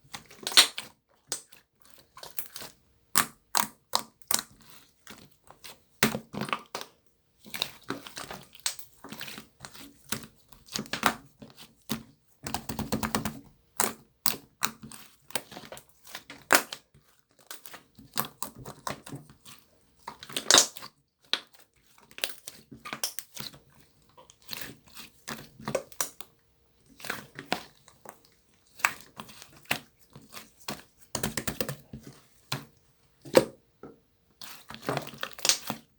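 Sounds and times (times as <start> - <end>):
slime crackling and popping: 0.4 - 1.5, 20.1 - 20.8, 34.6 - 35.8.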